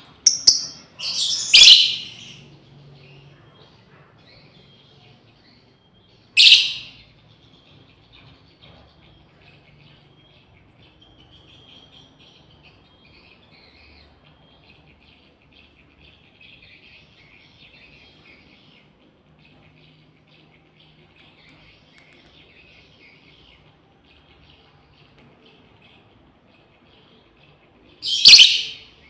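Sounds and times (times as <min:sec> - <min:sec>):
shrill bird call: 0:00.0 - 0:02.4, 0:06.3 - 0:07.0, 0:28.0 - 0:29.0
lovebirds chirping: 0:00.0 - 0:29.0.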